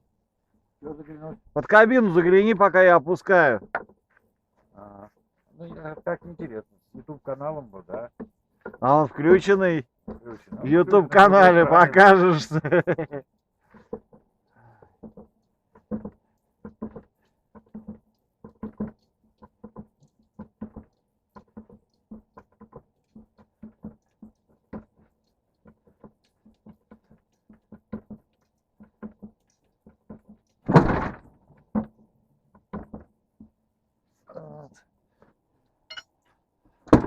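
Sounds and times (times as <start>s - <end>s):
heavy thud of truck cab: 30.7s - 31.3s.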